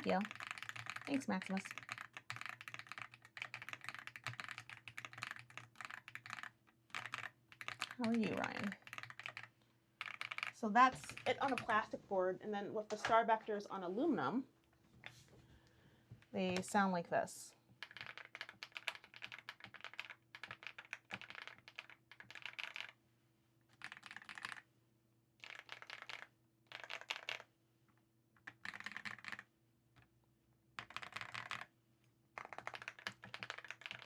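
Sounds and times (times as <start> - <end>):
mechanical keyboard typing: 0.0 - 11.9, 17.8 - 23.0, 23.7 - 24.6, 25.4 - 27.5, 28.4 - 30.1, 30.8 - 31.7, 32.4 - 34.0.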